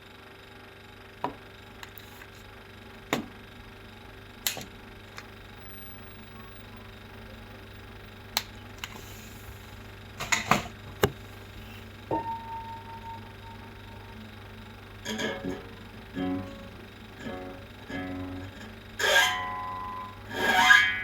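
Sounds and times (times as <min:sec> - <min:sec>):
refrigerator humming: 0:01.0 - 0:21.0.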